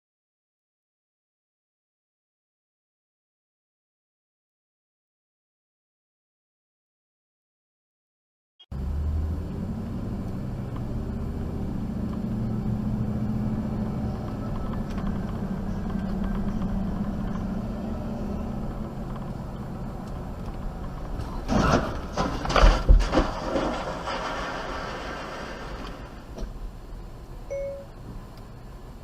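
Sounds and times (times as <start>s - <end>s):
vehicle engine and road noise: 8.7s - 29.0s
loud sharp knocks and crunches: 21.0s - 26.5s.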